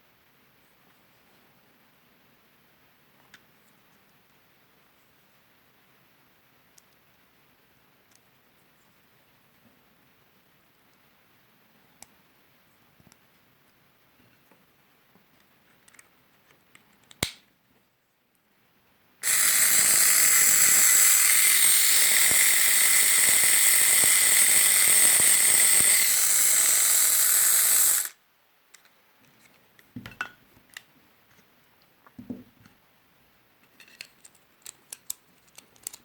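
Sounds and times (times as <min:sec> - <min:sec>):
epilator motor buzzing: 0:19.2 - 0:28.1.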